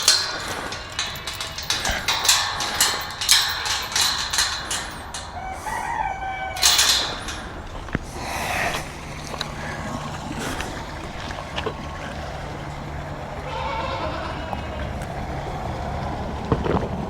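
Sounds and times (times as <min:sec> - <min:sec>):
rooster crowing: 0:05.4 - 0:06.6.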